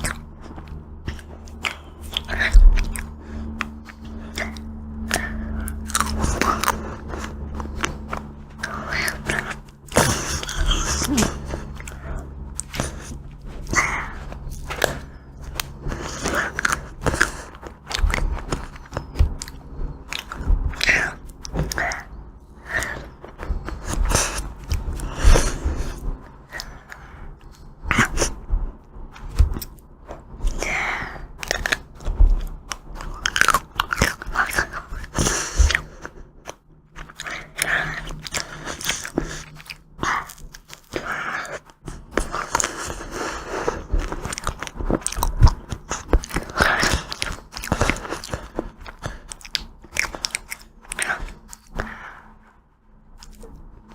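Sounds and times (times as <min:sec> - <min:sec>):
person biting and chewing ice cream: 0:00.0 - 0:52.4, 0:53.0 - 0:53.9.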